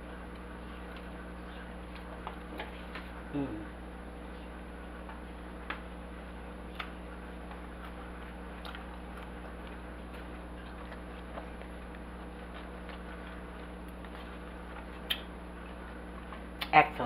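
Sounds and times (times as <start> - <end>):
low room hum: 0.0 - 17.0
person chewing with mouth clicks: 6.7 - 16.7.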